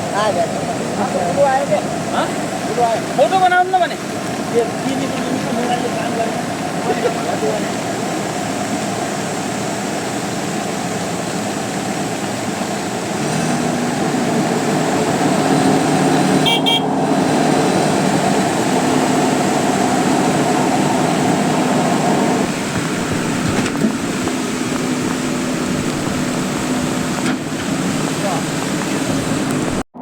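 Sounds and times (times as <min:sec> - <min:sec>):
steady rushing noise: 0:00.0 - 0:29.8
vehicle engine humming: 0:00.0 - 0:30.0
short high horn toot: 0:16.4 - 0:17.0.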